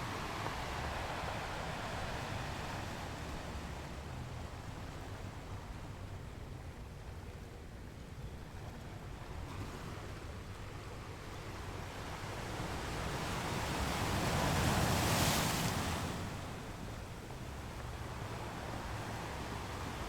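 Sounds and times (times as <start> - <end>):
ocean waves breaking on beach: 0.0 - 5.1, 11.1 - 20.0.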